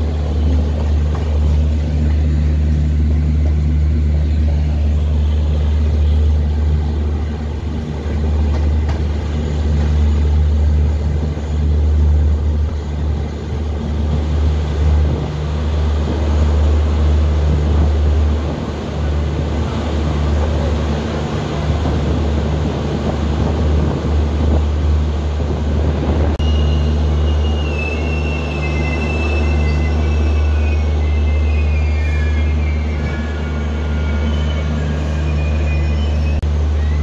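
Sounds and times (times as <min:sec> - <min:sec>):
train wheels rumbling on track: 0:00.0 - 0:37.0
high-pitched wheel squeal: 0:26.4 - 0:37.0.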